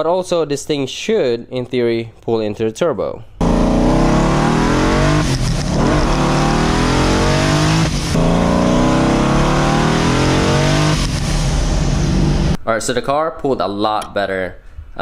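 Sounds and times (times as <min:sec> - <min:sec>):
car engine accelerating: 0:03.4 - 0:12.6.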